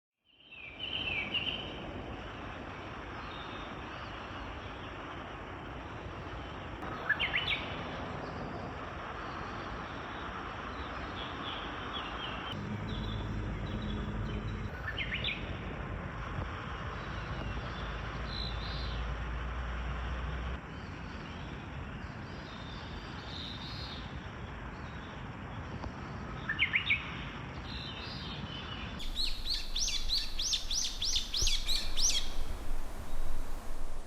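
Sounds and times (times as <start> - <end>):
songbirds chirping: 0.3 - 15.6, 20.0 - 34.0
woodland ambience hiss: 0.4 - 27.2, 27.8 - 34.0
low rumble: 12.6 - 16.6, 29.0 - 34.0.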